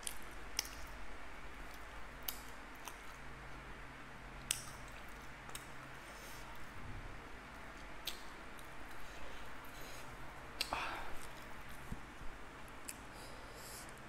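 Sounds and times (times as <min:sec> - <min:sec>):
chewing crisp flatbread: 0:00.0 - 0:03.7, 0:04.4 - 0:06.8.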